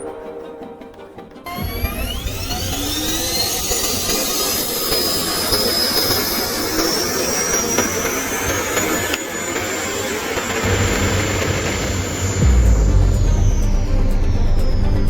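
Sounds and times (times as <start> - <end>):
electric motor whine rising: 1.5 - 15.0
steady rushing noise: 9.9 - 15.0
low rumble: 10.6 - 15.0.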